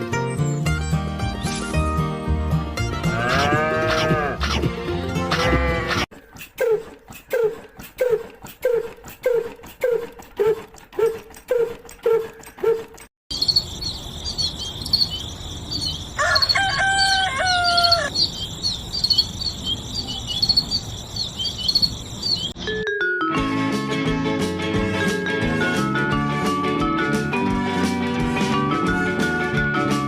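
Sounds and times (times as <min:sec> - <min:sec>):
birds chirping: 0:12.0 - 0:22.6
crickets chirping: 0:13.3 - 0:22.5
rooster crowing: 0:15.8 - 0:18.3.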